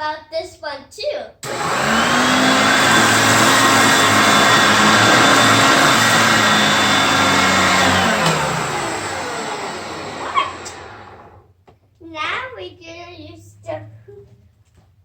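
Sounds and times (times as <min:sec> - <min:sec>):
vacuum cleaner motor whining: 0:01.4 - 0:11.4.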